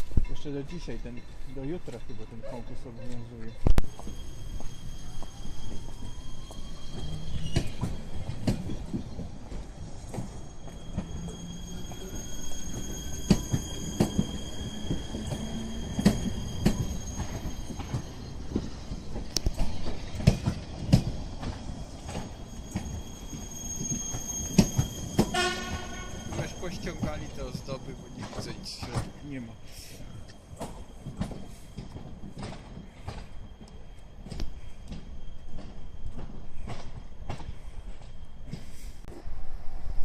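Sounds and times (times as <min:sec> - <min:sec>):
low train rumble: 0:00.0 - 0:40.0.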